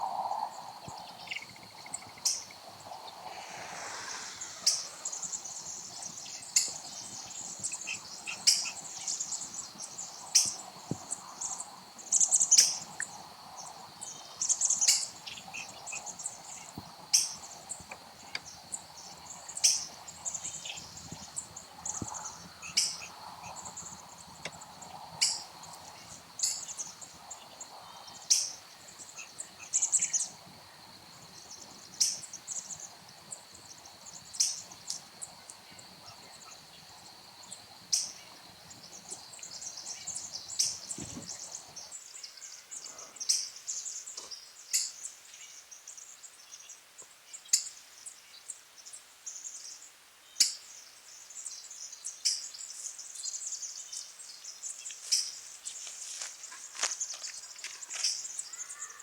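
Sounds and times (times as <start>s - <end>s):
high insect drone: 0.0s - 42.0s, 55.0s - 59.0s
bird chirping: 0.9s - 10.7s.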